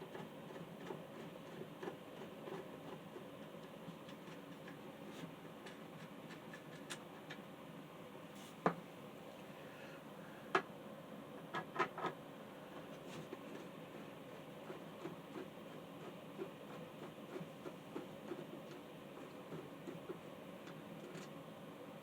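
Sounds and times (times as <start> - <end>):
clicks and knocks of handling fan: 11.4 - 12.2.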